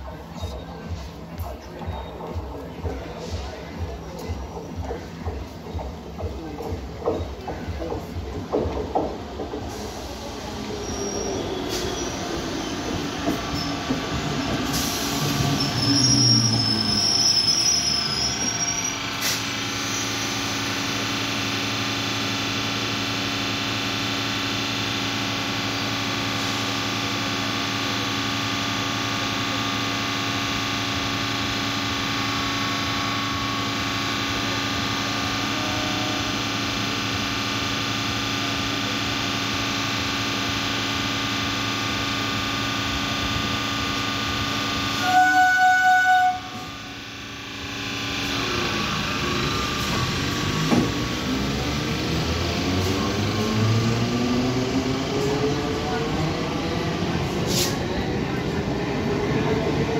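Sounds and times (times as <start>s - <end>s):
standing train humming: 0.0s - 59.9s
electric train drive sound: 2.4s - 59.9s
train brakes squealing: 9.7s - 20.6s.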